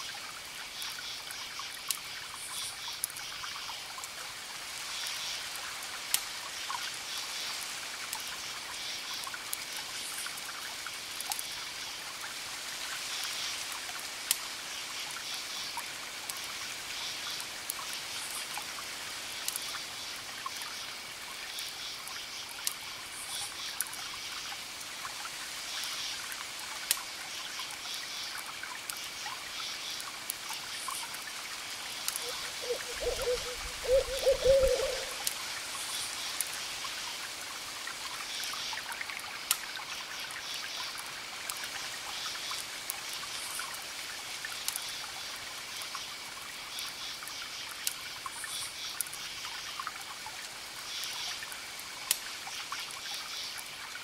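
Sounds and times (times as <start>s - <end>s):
wood fire crackling: 30.0s - 34.1s
owl hooting: 32.2s - 35.2s.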